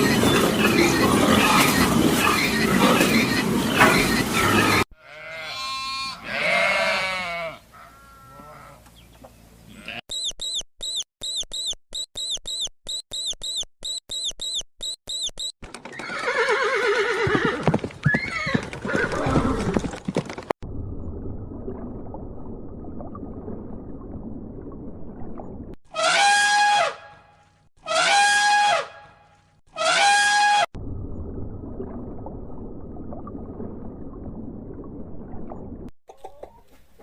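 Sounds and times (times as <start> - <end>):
drawn-out falling animal call: 0.0 - 10.0, 15.6 - 20.2
fast high chirps: 10.1 - 15.6.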